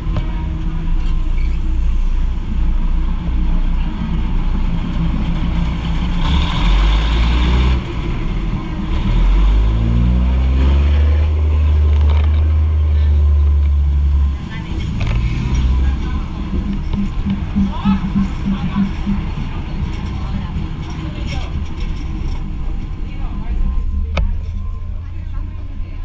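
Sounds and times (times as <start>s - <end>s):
diesel train engine running: 0.0s - 26.0s.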